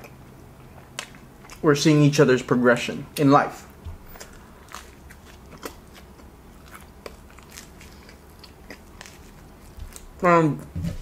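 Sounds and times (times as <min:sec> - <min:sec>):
chewing pizza crust: 0:00.0 - 0:02.2, 0:03.5 - 0:10.7.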